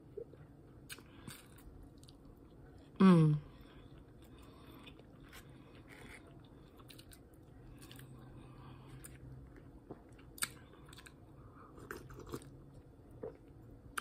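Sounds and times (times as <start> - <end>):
person chewing food: 0.2 - 2.9, 3.6 - 14.0.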